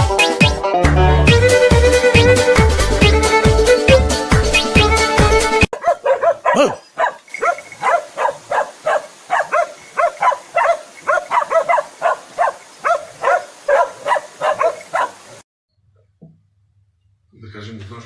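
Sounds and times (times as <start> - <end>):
music: 0.0 - 5.7
animal repeated short calls: 5.8 - 12.2.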